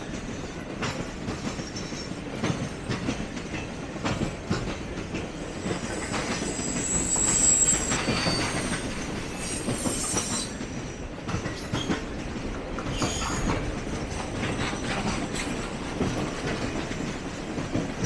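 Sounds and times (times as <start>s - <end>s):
freight train rumbling past: 0.0s - 18.0s
high-pitched wheel squeals: 5.6s - 11.0s, 12.9s - 13.6s
wheels clicking over rail joints: 10.7s - 18.0s.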